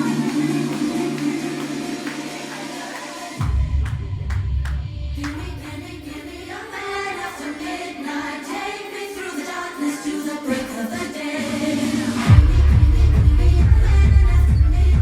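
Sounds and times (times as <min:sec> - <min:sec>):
choir-like sung vocal: 0:00.0 - 0:15.0
electronic club music: 0:00.0 - 0:15.0
deep bass: 0:03.4 - 0:06.0, 0:12.3 - 0:15.0.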